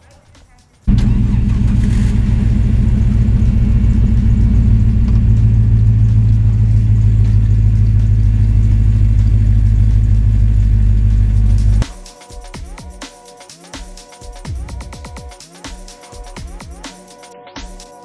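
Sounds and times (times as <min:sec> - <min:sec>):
vehicle engine droning: 0:00.9 - 0:11.8.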